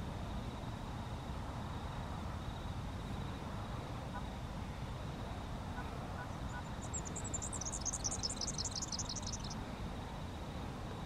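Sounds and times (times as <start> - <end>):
low outdoor rumble: 0.0 - 11.0
small bird calling rapid notes: 6.6 - 9.6.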